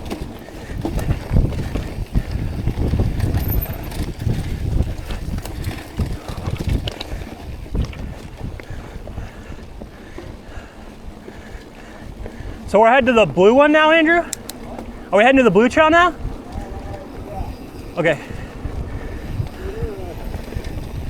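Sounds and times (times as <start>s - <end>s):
bike tyres knocking and rattling: 0.0s - 21.0s
wind buffeting microphone: 0.0s - 21.0s.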